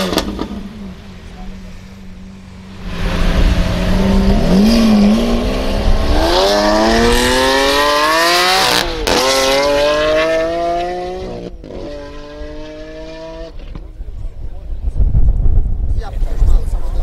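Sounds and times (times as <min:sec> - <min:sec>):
car engine accelerating hard: 0:00.0 - 0:13.8.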